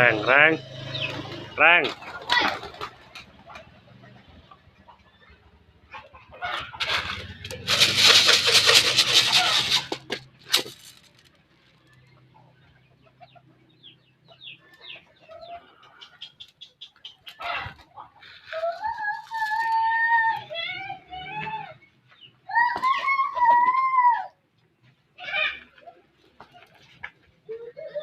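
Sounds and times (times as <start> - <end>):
chicken clucking: 0.1 - 10.2, 11.8 - 19.6
birds flapping flurry: 0.8 - 4.0, 6.5 - 11.8.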